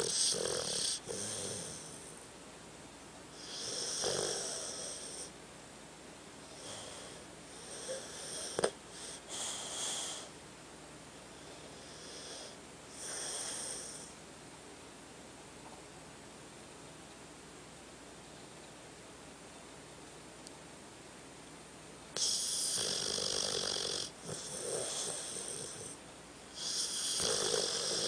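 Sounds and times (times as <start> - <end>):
dog snorting: 0.0 - 2.0, 22.2 - 26.0, 26.6 - 28.0
dog snoring with wheezy whistle: 0.0 - 2.2, 3.4 - 5.3, 6.4 - 10.3, 11.4 - 14.2, 22.2 - 28.0.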